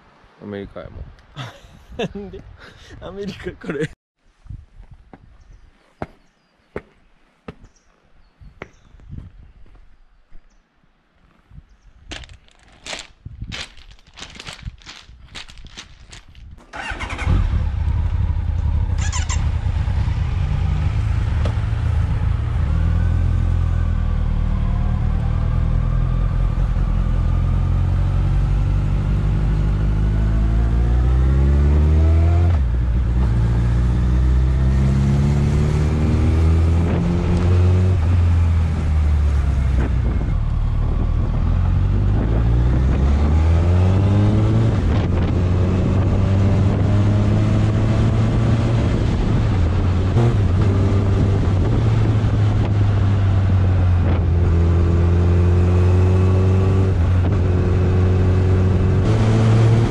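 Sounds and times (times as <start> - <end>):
motorcycle engine accelerating: 16.7 - 59.9.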